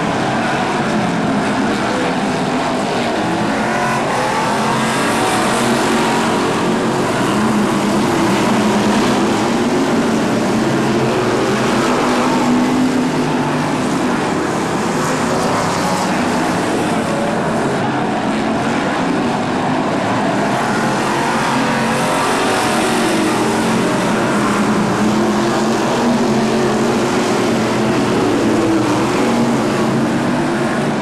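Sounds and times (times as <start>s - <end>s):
racing car engines: 0.0s - 31.0s.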